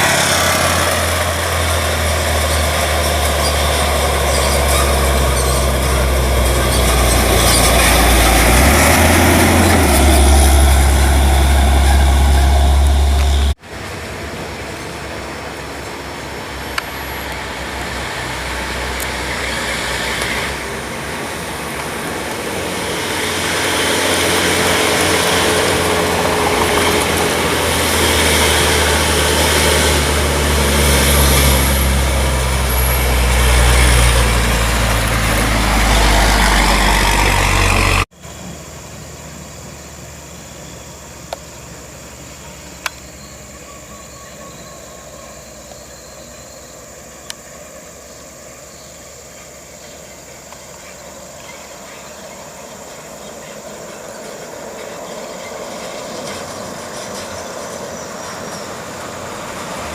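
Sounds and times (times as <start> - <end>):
truck diesel engine under load: 0.0 - 43.9, 50.3 - 59.9
steady vehicle noise: 0.0 - 59.9.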